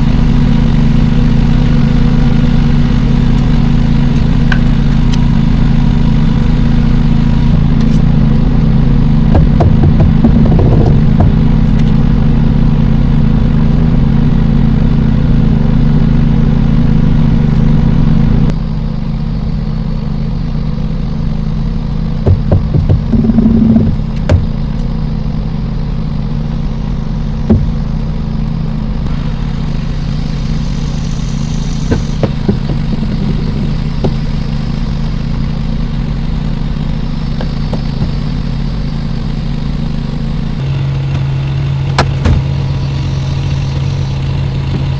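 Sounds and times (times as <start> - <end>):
diesel truck engine idling: 0.0 - 44.9
short knocks and clicks: 9.3 - 11.9, 22.2 - 24.5.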